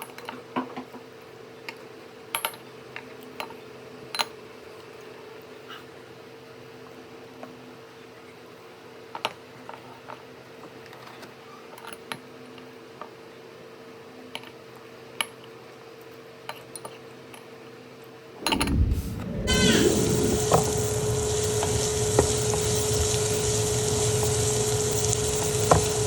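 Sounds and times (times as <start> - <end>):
loud rushing noise: 18.4 - 26.0
steady low hum: 18.4 - 26.0.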